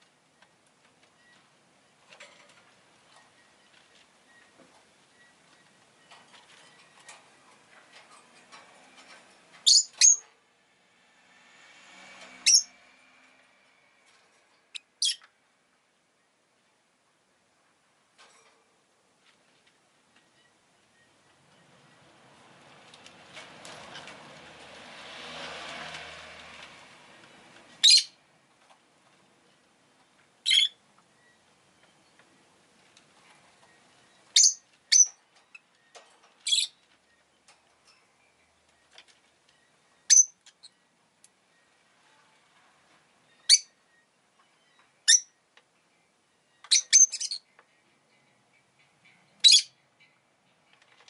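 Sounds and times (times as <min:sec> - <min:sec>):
passing vehicle: 0:07.6 - 0:15.7, 0:21.4 - 0:29.4
lovebird shrill chirps: 0:09.6 - 0:10.2, 0:12.4 - 0:12.7, 0:27.8 - 0:28.2, 0:30.4 - 0:30.8, 0:34.3 - 0:35.2, 0:40.1 - 0:40.4, 0:43.4 - 0:43.7, 0:45.0 - 0:45.3, 0:46.7 - 0:47.4, 0:49.4 - 0:49.7
lovebird chirping: 0:09.6 - 0:10.3, 0:12.4 - 0:12.7, 0:14.7 - 0:15.3, 0:27.8 - 0:28.2, 0:30.4 - 0:32.5, 0:33.7 - 0:37.3, 0:38.2 - 0:40.9, 0:43.3 - 0:45.4, 0:46.0 - 0:47.5, 0:49.1 - 0:50.2.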